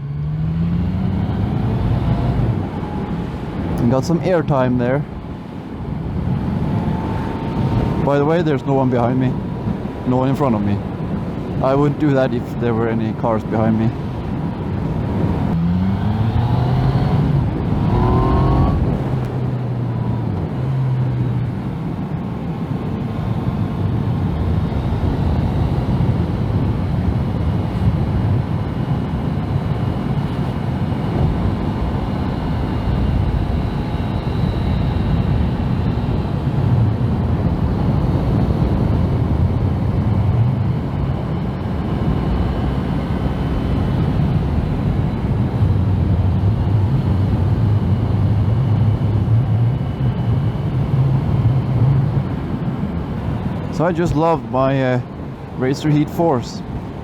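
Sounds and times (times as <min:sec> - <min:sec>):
motorcycle engine revving: 0:00.0 - 0:03.6, 0:14.2 - 0:21.6, 0:23.1 - 0:45.8.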